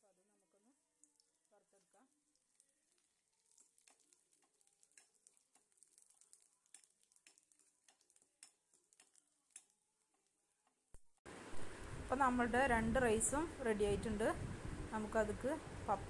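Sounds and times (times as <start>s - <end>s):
food crackling in hot oil: 0.0s - 10.9s.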